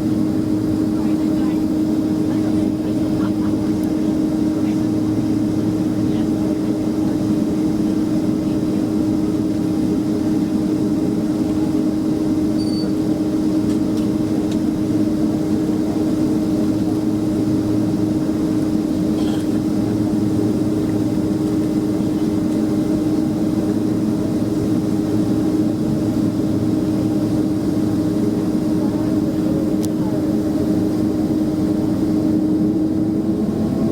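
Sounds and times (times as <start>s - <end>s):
jet engine cabin rumble: 0.0s - 33.9s.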